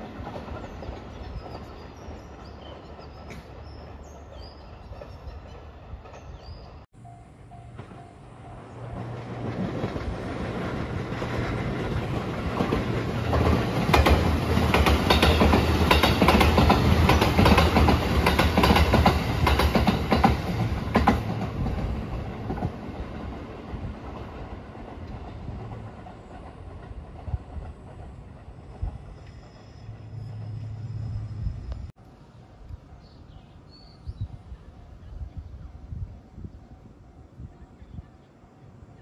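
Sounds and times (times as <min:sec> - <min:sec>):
low train hum: 0:00.0 - 0:39.0
train wheels clacking over rail joints: 0:09.4 - 0:22.7.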